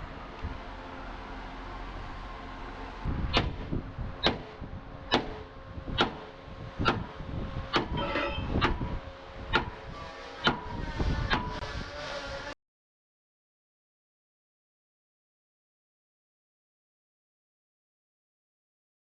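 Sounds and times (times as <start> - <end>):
steady mechanical hum: 0.0 - 12.6
sharp knocks: 3.3 - 3.6, 4.2 - 4.5, 5.1 - 5.4, 6.0 - 7.1, 7.7 - 8.9, 9.5 - 9.8.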